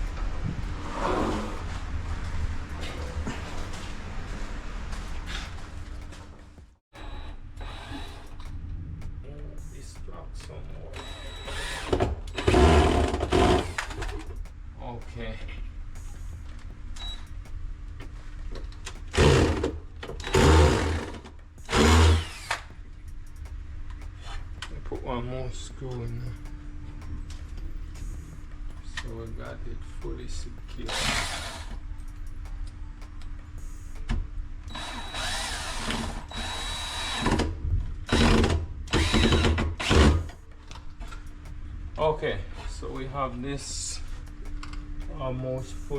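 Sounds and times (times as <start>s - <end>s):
power drill driving screws: 11.0s - 14.1s, 19.2s - 22.7s, 30.9s - 31.8s, 34.7s - 37.5s, 38.1s - 40.3s.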